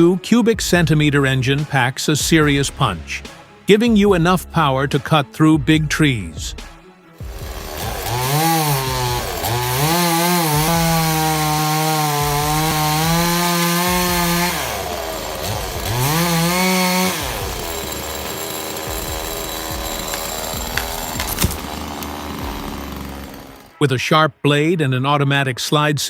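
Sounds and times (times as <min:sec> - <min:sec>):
chainsaw engine cutting wood: 0:07.2 - 0:23.8.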